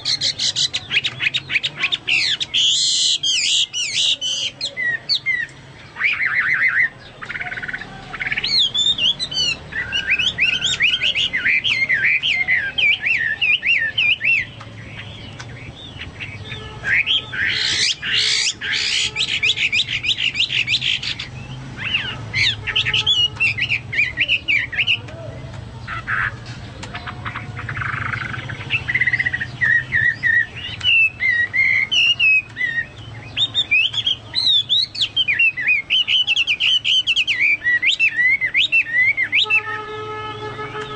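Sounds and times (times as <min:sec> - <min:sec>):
bird singing whistled phrases: 0:00.0 - 0:25.1, 0:27.6 - 0:39.8.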